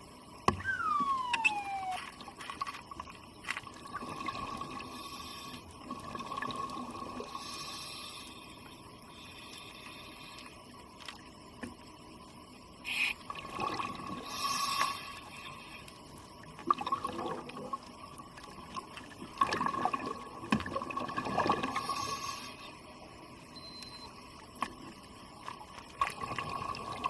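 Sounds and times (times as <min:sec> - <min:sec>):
steady background hiss: 0:06.7 - 0:16.6
water bubbling underwater: 0:16.5 - 0:21.9.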